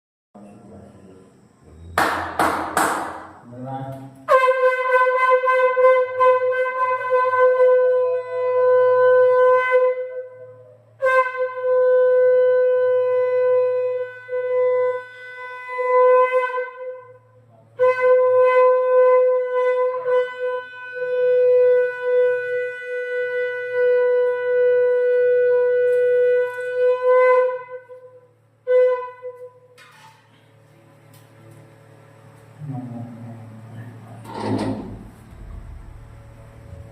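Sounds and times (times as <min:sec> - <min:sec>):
conch shell blasts: 0:04.3 - 0:10.4.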